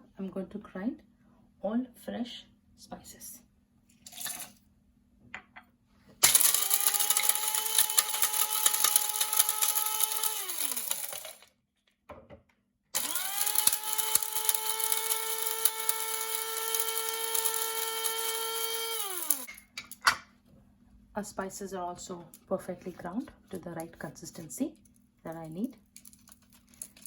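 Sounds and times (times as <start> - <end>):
electric spice grinder running: 6.2 - 11.5, 13.0 - 19.5.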